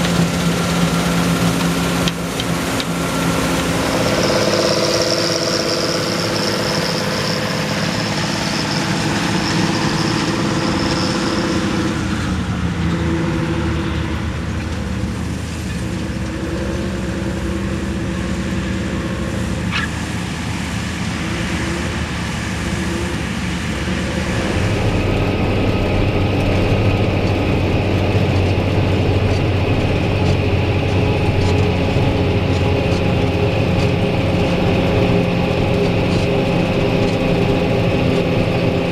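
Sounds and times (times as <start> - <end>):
diesel machinery engines running: 0.0 - 38.9.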